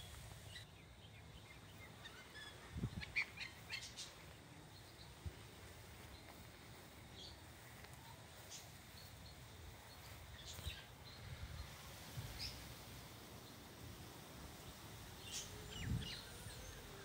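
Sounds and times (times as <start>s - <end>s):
bird chirps: 0.0s - 5.2s, 14.6s - 17.0s.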